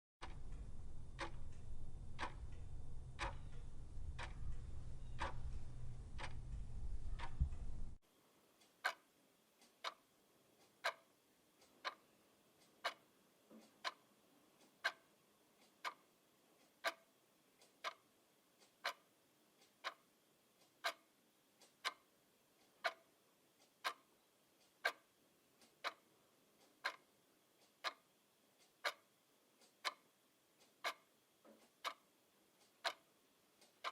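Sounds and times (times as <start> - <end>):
clock ticking: 0.2 - 8.0, 8.6 - 33.9
low rumble: 0.2 - 8.0.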